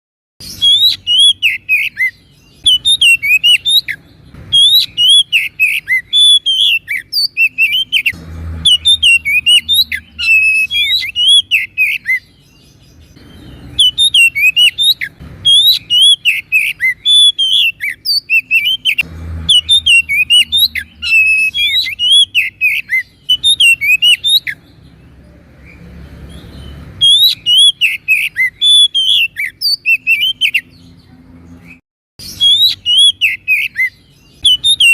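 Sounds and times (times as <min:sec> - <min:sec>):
bird whistling and chirping: 0:00.4 - 0:31.0, 0:31.6 - 0:34.9.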